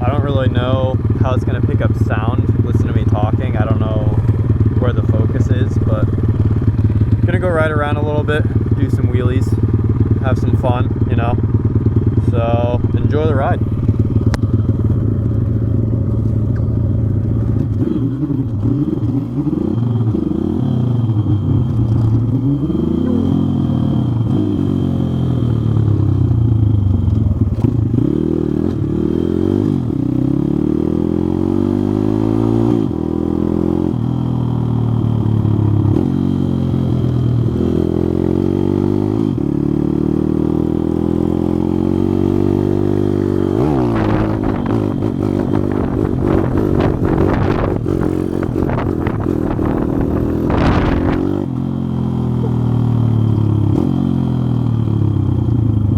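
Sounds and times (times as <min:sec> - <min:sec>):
motorbike engine revving: 0:00.0 - 0:55.9.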